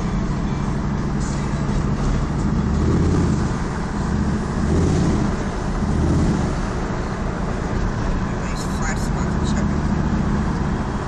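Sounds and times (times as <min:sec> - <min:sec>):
pickup truck engine and road noise: 0:00.0 - 0:11.0.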